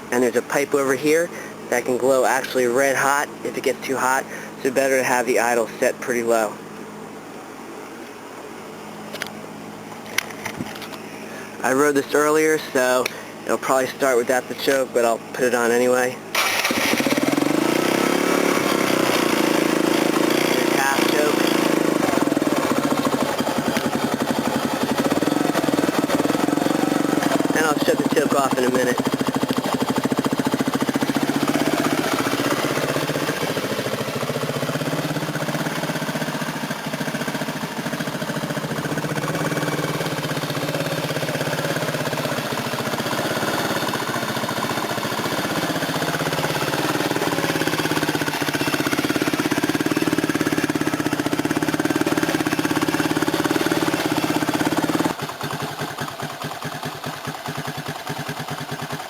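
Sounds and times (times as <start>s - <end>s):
motorcycle engine idling: 15.4s - 59.0s.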